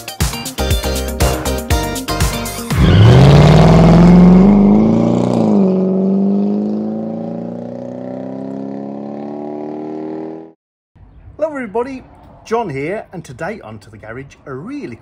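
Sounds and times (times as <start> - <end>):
car engine revving: 2.7 - 10.5.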